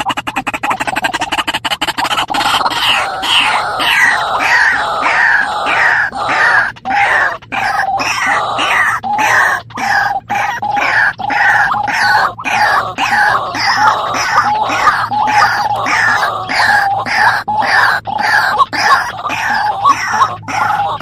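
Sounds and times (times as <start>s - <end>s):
birds calling harshly: 0.0s - 21.0s.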